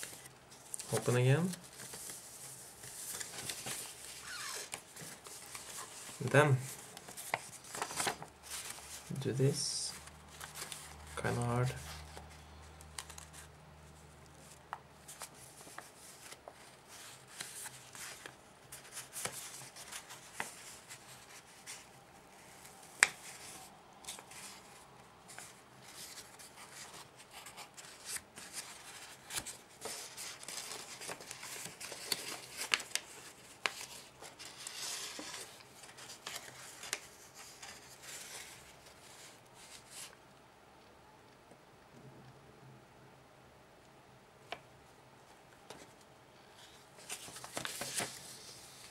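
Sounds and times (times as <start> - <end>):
sharp clicks of paper folds: 0.0 - 9.1, 11.9 - 13.5, 22.4 - 24.6, 25.3 - 38.6, 46.6 - 48.9
paper rustling and crinkling: 0.0 - 40.2, 45.7 - 48.9.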